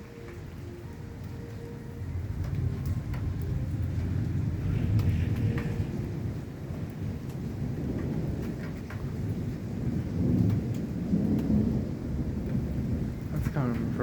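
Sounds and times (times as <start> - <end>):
rain falling: 0.0 - 14.0
rolling thunder: 0.0 - 14.0.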